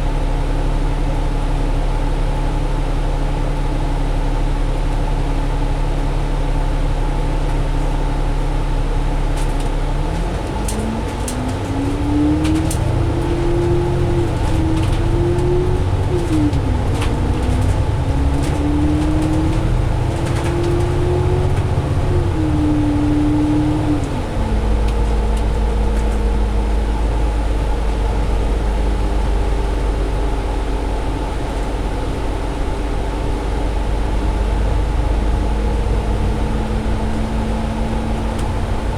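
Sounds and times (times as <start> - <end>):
bus diesel engine accelerating: 0.0 - 38.9
faint rattles: 9.4 - 22.4.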